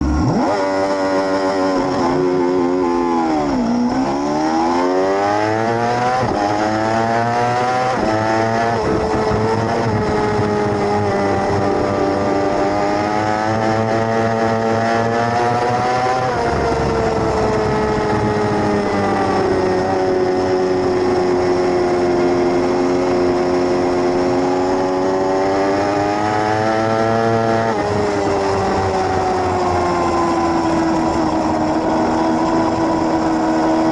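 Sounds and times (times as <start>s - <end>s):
sportbike engine revving: 0.0s - 33.9s.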